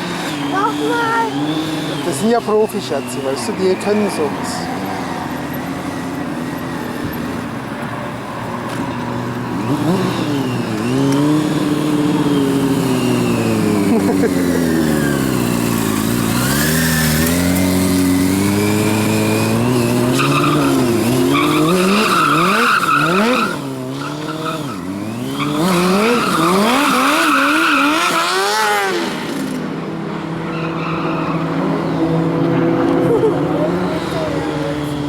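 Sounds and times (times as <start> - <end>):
motorcycle engine revving: 0.0 - 35.0
tyre squealing: 8.6 - 29.4, 30.4 - 32.0.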